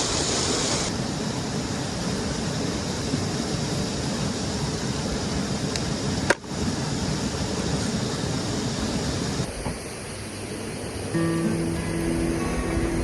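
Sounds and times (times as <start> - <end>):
stream water rushing: 0.0 - 13.0
background music: 10.6 - 13.0.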